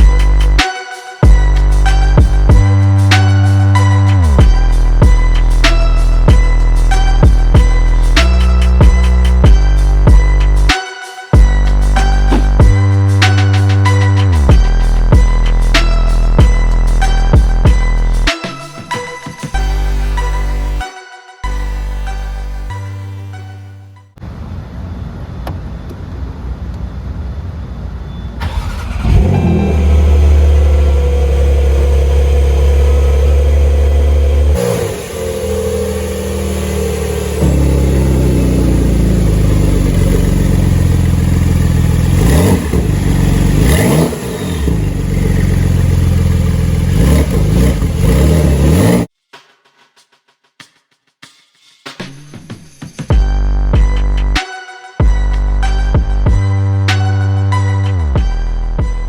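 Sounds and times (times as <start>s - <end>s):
car engine under load: 12.2s - 12.8s, 28.4s - 49.1s.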